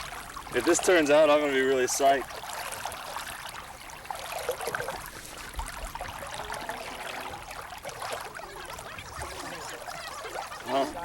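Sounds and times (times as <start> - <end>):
water splashing along a hull: 0.0 - 11.0.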